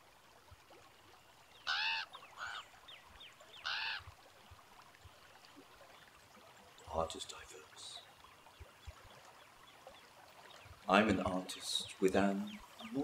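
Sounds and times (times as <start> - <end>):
bird honking: 1.6 - 2.7, 3.6 - 4.1.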